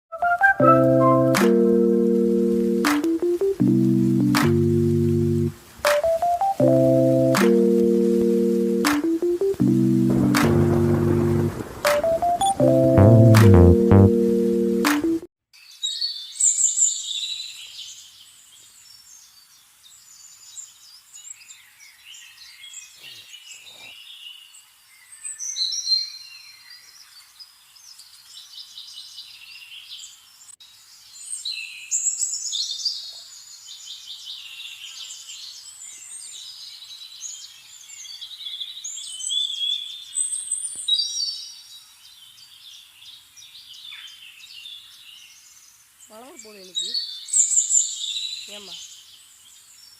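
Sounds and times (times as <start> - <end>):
small birds chirping: 15.6 - 49.9.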